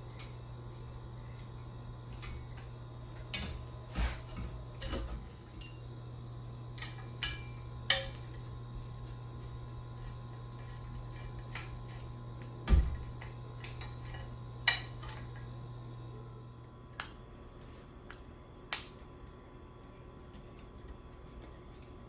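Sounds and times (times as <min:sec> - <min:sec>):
steady low hum: 0:00.0 - 0:22.0
metal tools clinking: 0:06.8 - 0:09.7.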